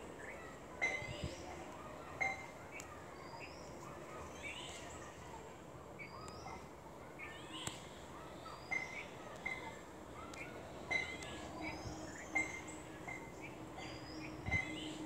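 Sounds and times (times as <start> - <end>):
birds chirping and whistling: 6.0 - 7.8, 8.4 - 9.8, 10.4 - 15.0.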